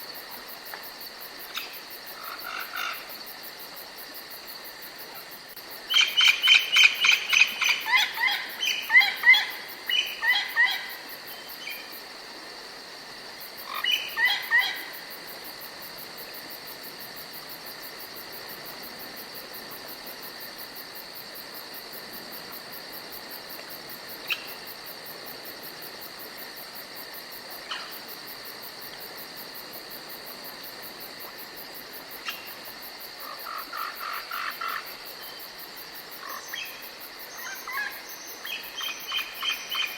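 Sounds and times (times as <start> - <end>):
high insect drone: 0.0 - 39.9
songbird singing: 5.9 - 11.9, 36.3 - 39.9.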